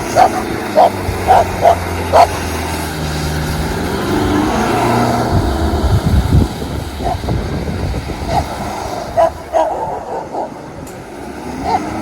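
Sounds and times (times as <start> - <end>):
car engine running: 0.0 - 11.0
engine barks: 0.0 - 12.0.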